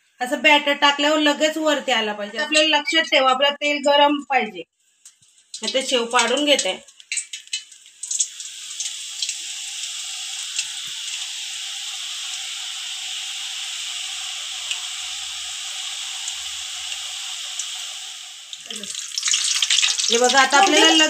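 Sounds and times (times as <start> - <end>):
batter sizzling in hot oil: 4.8 - 21.0.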